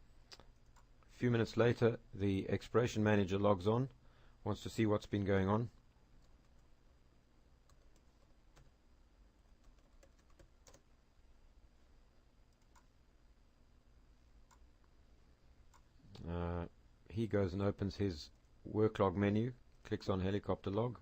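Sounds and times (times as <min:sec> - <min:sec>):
low steady hum: 0:00.0 - 0:21.0
keyboard keystrokes and clicks: 0:09.6 - 0:10.8, 0:12.5 - 0:12.9.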